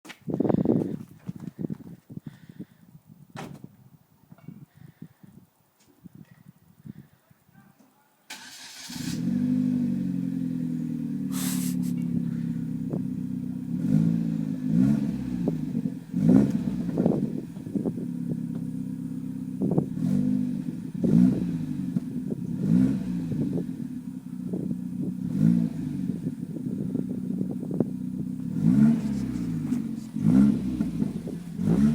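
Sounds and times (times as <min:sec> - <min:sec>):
car engine starting and idling: 0:08.3 - 0:31.9
engine revving: 0:08.4 - 0:17.6, 0:19.7 - 0:24.0, 0:25.2 - 0:31.9.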